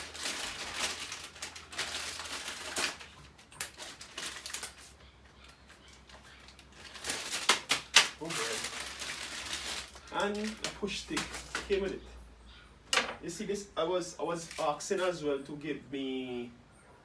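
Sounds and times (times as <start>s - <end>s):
packaging rustling and crinkling: 0.0s - 12.0s, 14.4s - 15.2s.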